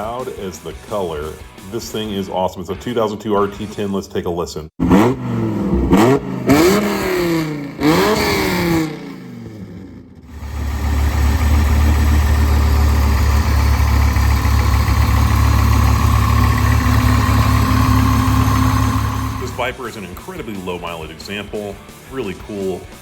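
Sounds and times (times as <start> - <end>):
engine revving and idling: 4.8 - 19.8.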